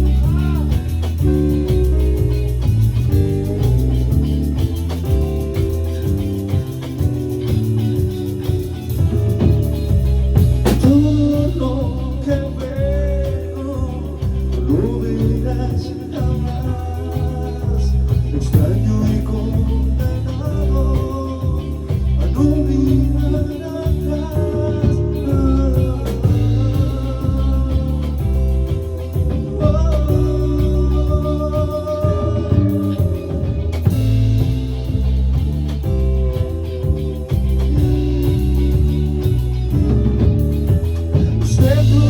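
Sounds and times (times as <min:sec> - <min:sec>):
bass guitar: 0:00.0 - 0:42.0
drum kit: 0:00.0 - 0:42.0
guitar with bending melody: 0:00.0 - 0:42.0.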